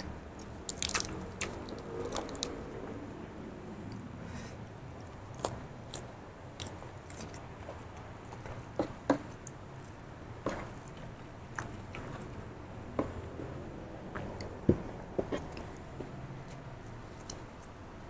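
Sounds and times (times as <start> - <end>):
chewing raw vegetables: 0.0 - 2.8, 5.0 - 17.8.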